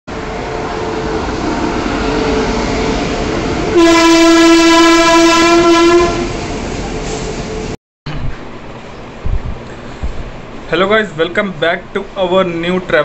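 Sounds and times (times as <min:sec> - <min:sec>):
train rumbling: 0:00.1 - 0:13.0
loud train horn: 0:03.7 - 0:06.5.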